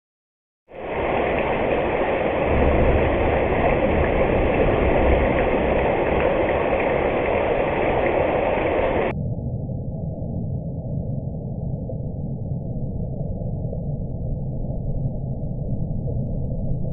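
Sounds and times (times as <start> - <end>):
steady rain hiss: 0.7 - 9.1.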